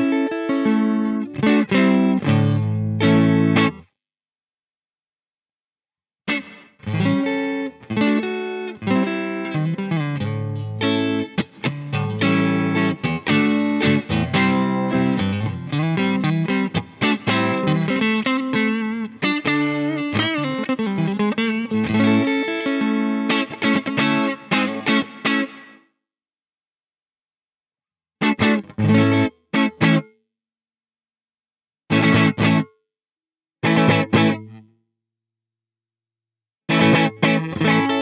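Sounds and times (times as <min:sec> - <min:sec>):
electric guitar chords and notes: 0:00.0 - 0:03.9, 0:06.3 - 0:25.8, 0:28.2 - 0:30.1, 0:31.9 - 0:32.7, 0:33.6 - 0:34.6, 0:36.7 - 0:38.0.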